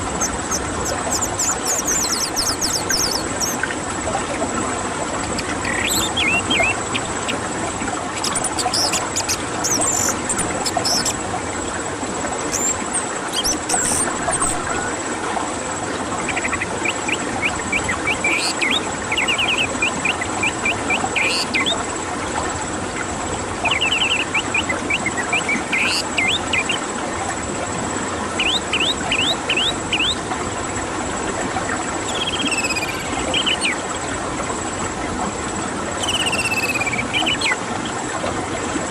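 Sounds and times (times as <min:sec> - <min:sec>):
thrush chirping: 0:00.0 - 0:03.7, 0:05.3 - 0:07.6, 0:08.2 - 0:11.2, 0:12.5 - 0:15.0, 0:16.2 - 0:21.8, 0:32.1 - 0:33.8.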